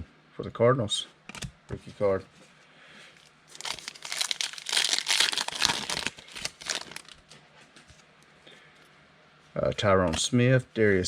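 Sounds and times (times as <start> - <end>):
foil wrapper crackling: 3.5 - 7.2.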